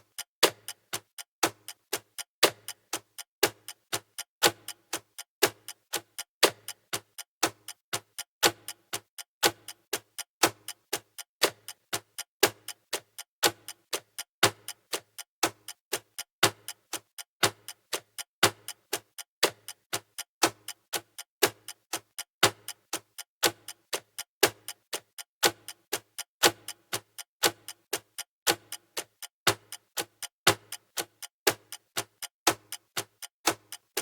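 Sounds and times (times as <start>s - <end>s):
countdown timer ticking: 0.0s - 34.0s.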